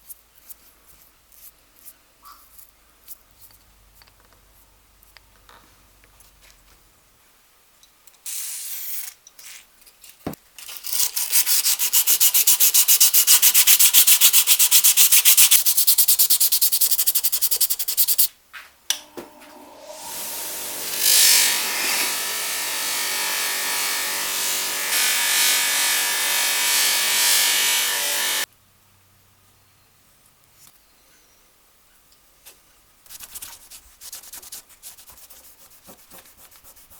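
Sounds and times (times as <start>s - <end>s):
metal being sanded by hand: 11.0s - 18.3s, 20.0s - 28.5s, 33.1s - 36.9s
small power tool grinding: 19.4s - 28.5s.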